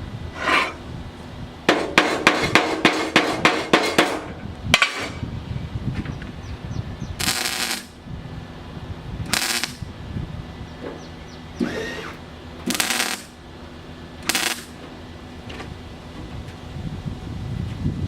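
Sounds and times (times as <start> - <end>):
welder crackling: 7.2 - 8.0, 9.2 - 9.9, 11.6 - 13.4, 14.2 - 14.9.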